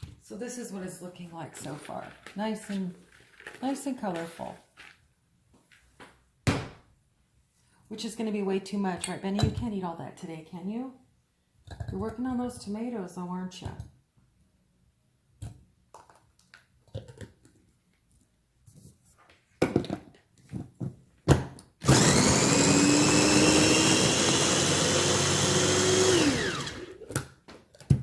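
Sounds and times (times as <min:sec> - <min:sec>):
food processor motor running: 0:21.8 - 0:27.2.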